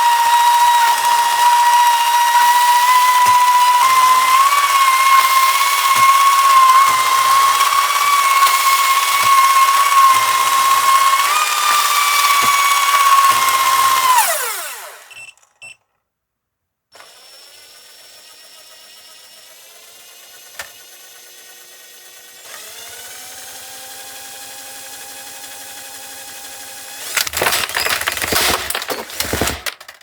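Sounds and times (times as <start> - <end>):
small motor whining high: 0.0 - 15.4.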